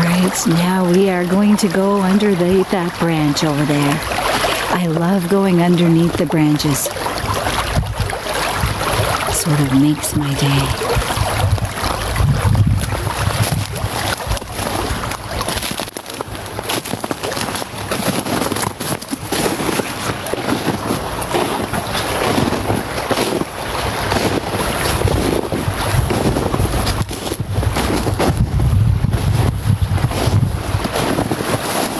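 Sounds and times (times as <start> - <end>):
wind buffeting microphone: 7.0 - 9.4, 10.5 - 15.1, 24.0 - 31.5.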